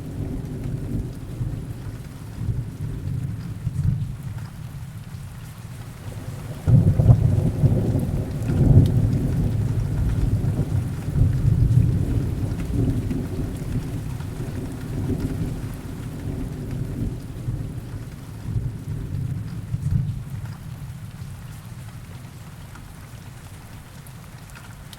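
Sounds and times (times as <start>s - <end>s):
heavy rain: 0.0s - 24.9s
deep thunder rolling: 6.0s - 20.2s.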